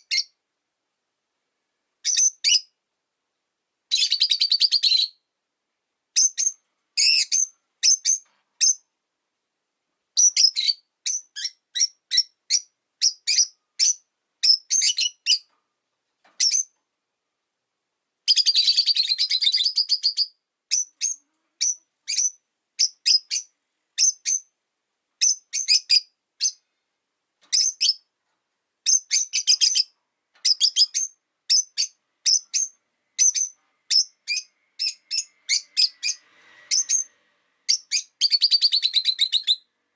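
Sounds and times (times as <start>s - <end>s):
lovebirds chirping: 0.0s - 0.4s, 2.0s - 2.8s, 3.9s - 5.3s, 6.1s - 8.9s, 10.1s - 15.6s, 16.2s - 16.8s, 18.2s - 24.6s, 25.2s - 26.7s, 27.4s - 28.1s, 28.8s - 37.1s, 37.7s - 39.7s.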